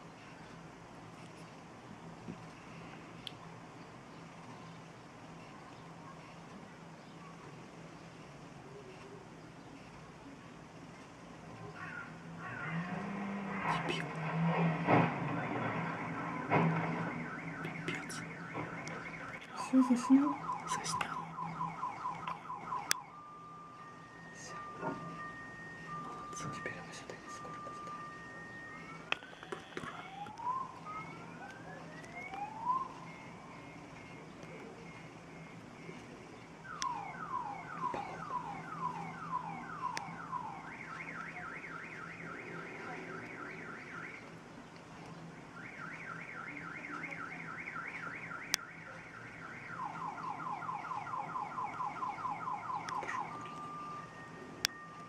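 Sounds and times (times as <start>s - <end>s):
car alarm siren: 12.0s - 34.0s, 36.6s - 44.4s, 45.5s - 55.0s.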